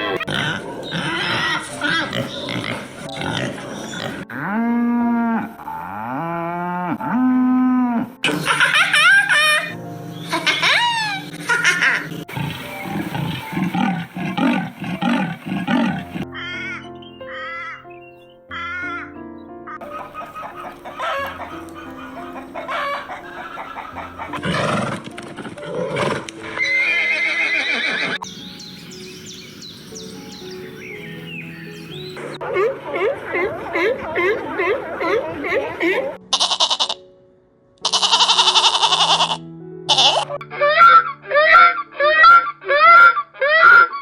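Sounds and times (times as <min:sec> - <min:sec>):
animal calls: 0:00.0 - 0:04.2, 0:08.2 - 0:17.8, 0:19.7 - 0:25.0, 0:37.8 - 0:44.0
soft background music: 0:00.0 - 0:44.0
cattle mooing: 0:12.3 - 0:16.2
higher wavering animal calls: 0:39.9 - 0:44.0.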